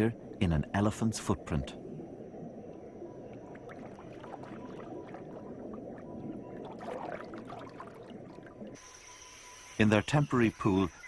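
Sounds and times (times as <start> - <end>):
water rushing: 0.0 - 11.0
water drips and ticks: 2.7 - 8.8.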